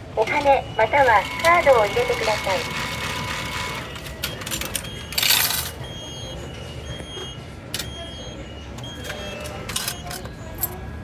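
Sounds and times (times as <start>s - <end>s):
station background noise: 0.0s - 11.0s
ticket machine clicks: 0.2s - 5.8s, 7.7s - 8.0s, 8.8s - 10.8s
coins rattling into machine: 1.4s - 5.8s, 9.0s - 10.8s.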